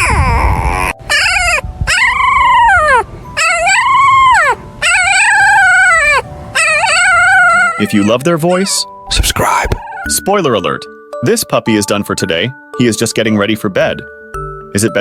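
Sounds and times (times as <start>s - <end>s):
puppies howling: 0.0s - 10.2s.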